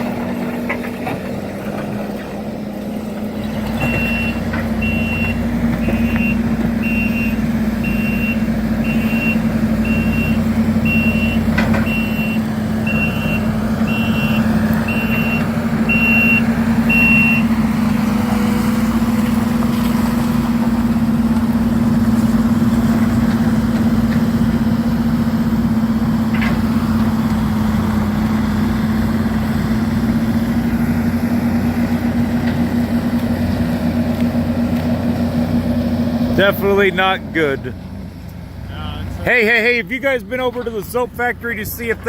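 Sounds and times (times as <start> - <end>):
diesel engine running: 0.0 - 42.0
backup alarm beeping: 3.8 - 17.5.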